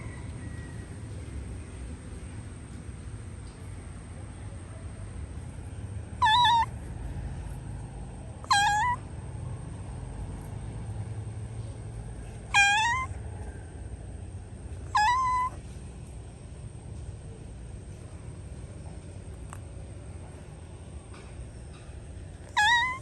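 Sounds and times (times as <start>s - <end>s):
cat meowing: 6.2s - 6.7s, 8.4s - 9.0s, 12.5s - 13.2s, 14.8s - 15.6s, 22.4s - 23.0s.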